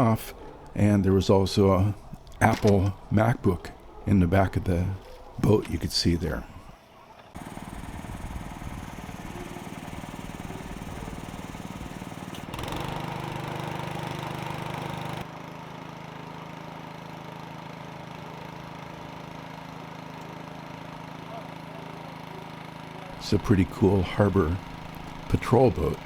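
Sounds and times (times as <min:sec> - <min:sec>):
boat engine idling: 0:00.0 - 0:06.8, 0:07.4 - 0:15.2, 0:21.1 - 0:26.0.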